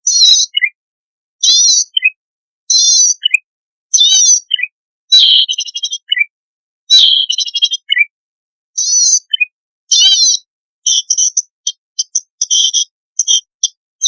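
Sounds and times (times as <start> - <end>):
bird song buzzy phrases: 0.0 - 0.8, 1.4 - 8.2, 8.8 - 13.8
rapid bird ticks: 10.9 - 12.6.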